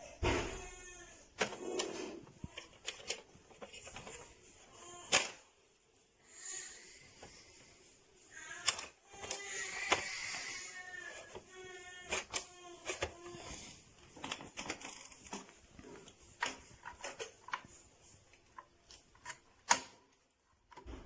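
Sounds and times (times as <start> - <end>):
plastic toy clicking and knocking: 1.4 - 5.5, 8.3 - 21.0.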